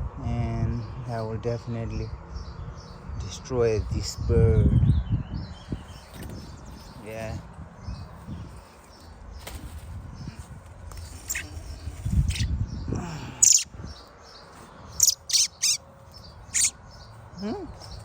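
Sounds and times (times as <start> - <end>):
bird chirping: 4.1 - 18.0.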